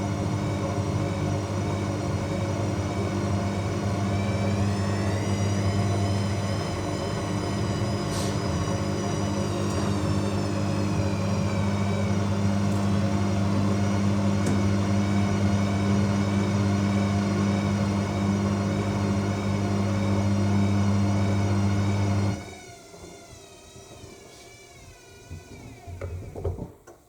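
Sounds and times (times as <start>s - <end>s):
washing machine wavering whine: 0.0s - 26.4s
washing machine motor hum: 0.0s - 26.8s.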